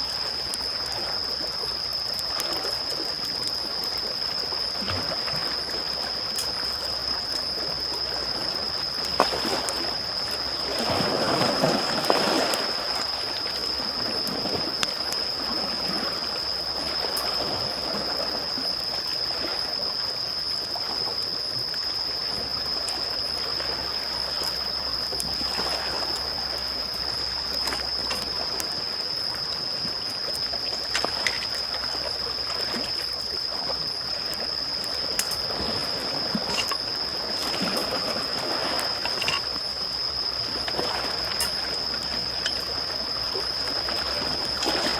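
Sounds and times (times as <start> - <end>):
small waves lapping on shore: 0.0 - 44.9
campfire crackling: 0.1 - 17.5, 22.8 - 37.6.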